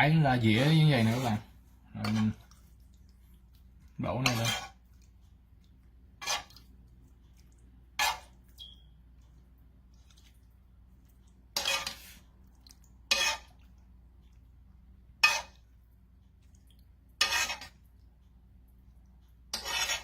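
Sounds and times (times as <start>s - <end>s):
utensil scraping cookware: 0.4s - 2.4s, 4.1s - 4.8s, 6.2s - 6.6s, 8.0s - 8.4s, 11.6s - 12.2s, 13.1s - 13.6s, 15.2s - 15.6s, 17.2s - 17.8s, 19.5s - 20.0s.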